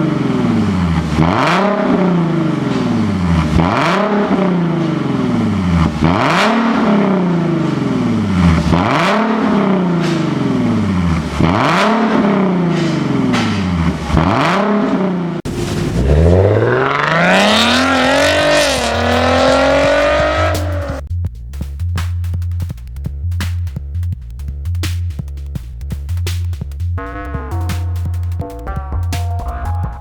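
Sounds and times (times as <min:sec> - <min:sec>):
car engine revving: 0:00.0 - 0:21.1
electronic music with a beat: 0:15.9 - 0:30.0.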